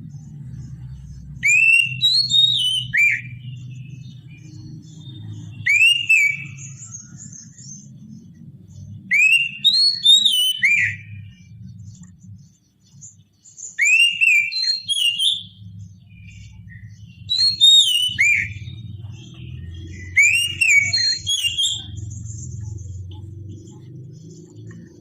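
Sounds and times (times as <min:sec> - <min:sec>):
steady low hum: 0:00.0 - 0:02.1, 0:15.4 - 0:25.0
bird singing whistled phrases: 0:01.3 - 0:04.6, 0:05.3 - 0:07.9, 0:09.0 - 0:11.6, 0:13.6 - 0:23.1.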